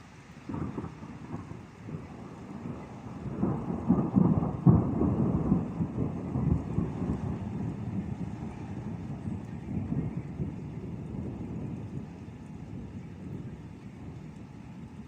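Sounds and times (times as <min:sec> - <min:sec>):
thunder rumbling: 0:00.4 - 0:15.0.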